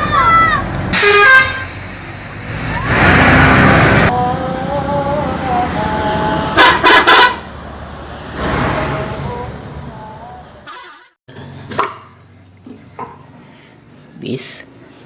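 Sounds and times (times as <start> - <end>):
vehicle noise: 0.0 - 15.0
short horn blasts: 1.0 - 1.8, 6.4 - 7.5, 10.6 - 11.2
wavering horn tones: 10.6 - 11.2.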